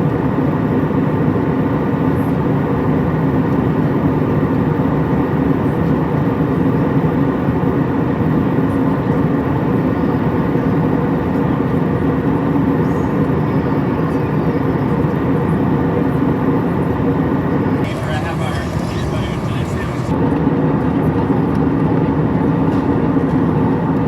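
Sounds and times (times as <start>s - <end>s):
airliner cabin engine rush: 0.0s - 24.0s.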